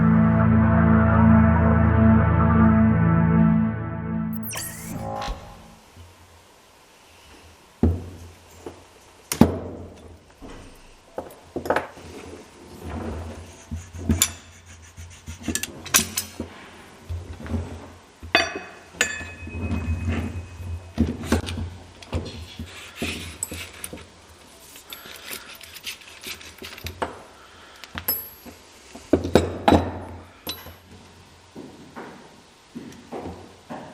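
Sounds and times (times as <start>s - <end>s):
sharp metal strikes: 4.4s - 5.9s.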